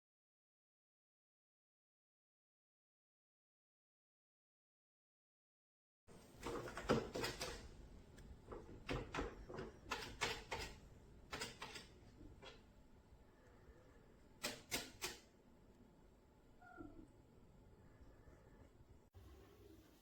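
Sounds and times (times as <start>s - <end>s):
irregular clicks and knocks: 6.2s - 12.7s.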